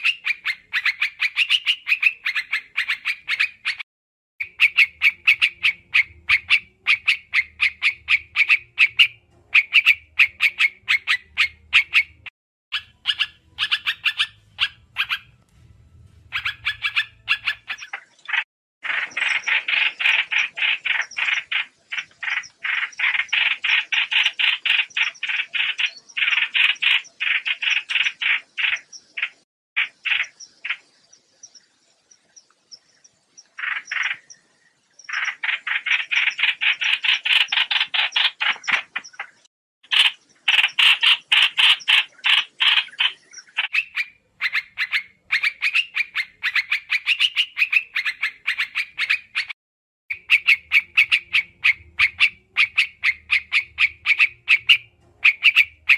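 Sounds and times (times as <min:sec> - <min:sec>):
birds chirping rapidly: 0:00.0 - 0:03.8, 0:04.4 - 0:55.9.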